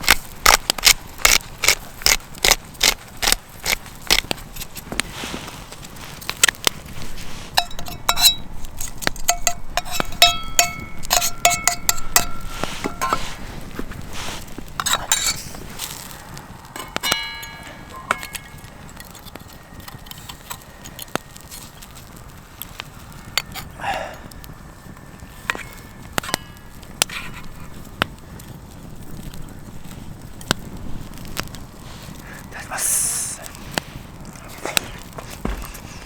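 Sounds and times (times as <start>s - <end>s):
metal cookware clinking: 7.6s - 13.4s, 14.8s - 15.6s, 16.8s - 18.7s.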